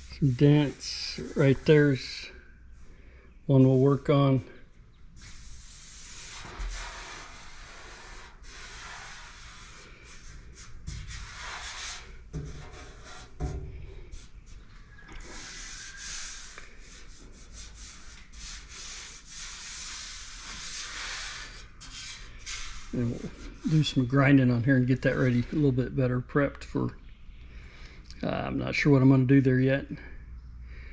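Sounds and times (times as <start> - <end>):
hand rubbing sheet steel: 0.0 - 2.9, 5.2 - 25.7.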